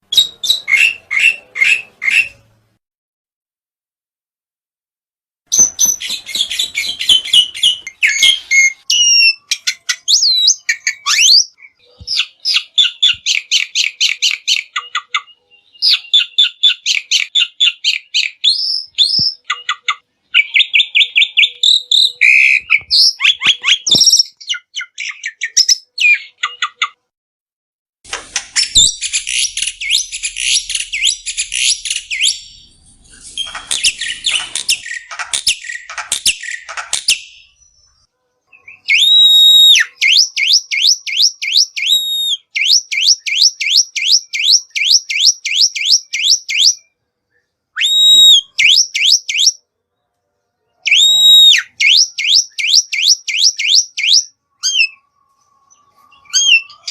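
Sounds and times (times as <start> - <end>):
bird chattering and whistling: 0.1 - 2.4, 5.5 - 27.0, 28.6 - 37.5, 50.9 - 55.0, 56.1 - 56.9.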